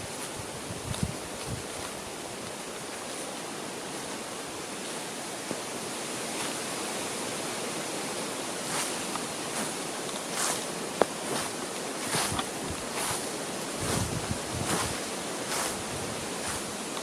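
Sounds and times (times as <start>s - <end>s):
footsteps crunching on woodland floor: 0.0s - 4.2s, 8.6s - 17.0s
wind rushing through trees: 0.0s - 17.0s.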